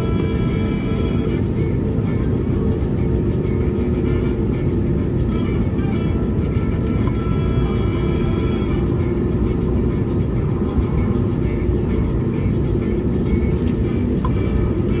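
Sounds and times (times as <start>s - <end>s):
jet engines rumbling in cabin: 0.0s - 15.0s.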